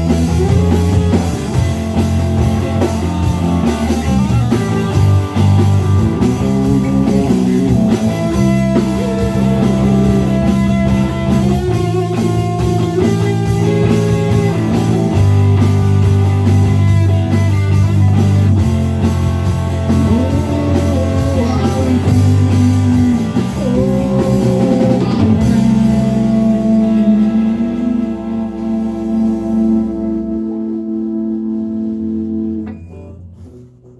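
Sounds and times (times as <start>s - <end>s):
rock band playing: 0.0s - 33.7s
lead guitar with bent notes: 0.0s - 33.9s.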